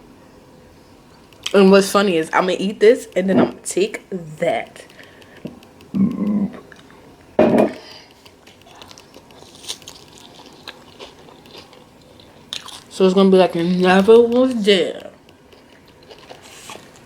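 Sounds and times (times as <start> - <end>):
person chewing food: 1.2 - 1.6, 4.6 - 17.0
mouth clicks: 4.8 - 7.0
person humming: 5.9 - 6.6.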